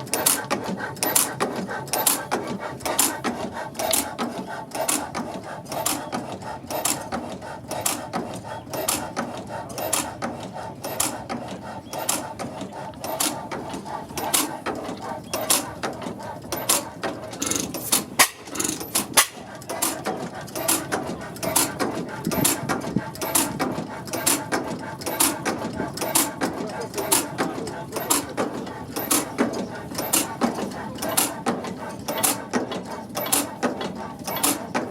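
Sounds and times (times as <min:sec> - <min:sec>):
stationary engine running: 0:00.0 - 0:34.9
valve gear clicking: 0:13.0 - 0:22.6, 0:29.0 - 0:34.9.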